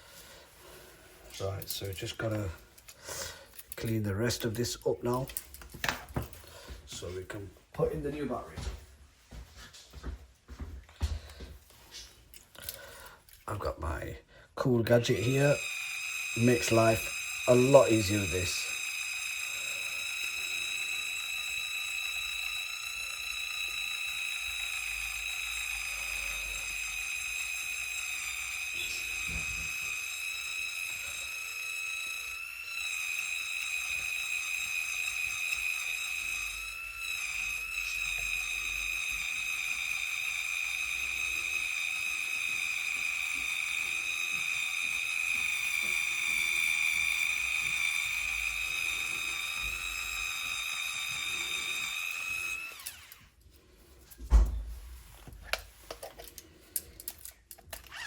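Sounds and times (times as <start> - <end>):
small electric tool whining: 0.0 - 7.2, 14.8 - 58.0.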